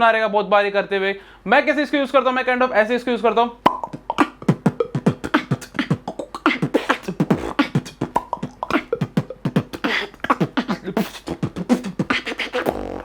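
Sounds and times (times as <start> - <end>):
beatbox hissing: 3.6 - 13.0
beatboxing pops and clicks: 3.6 - 13.0.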